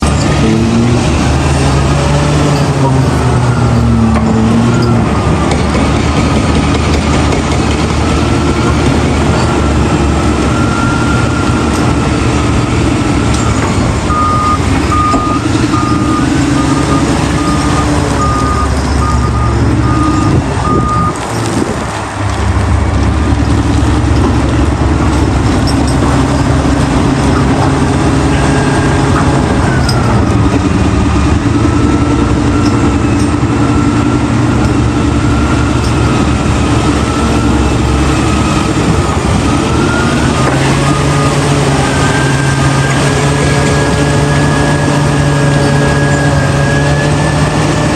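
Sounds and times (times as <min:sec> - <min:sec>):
diesel machinery engine: 0:00.0 - 0:47.9
backup alarm beeping: 0:13.4 - 0:21.2.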